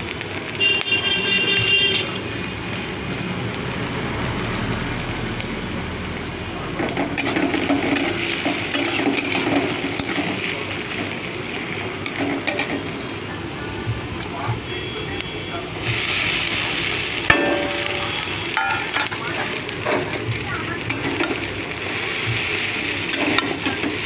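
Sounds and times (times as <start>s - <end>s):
food sizzling in a pan: 0.0s - 24.0s
utensil scraping a pan: 6.8s - 11.2s, 14.2s - 14.6s.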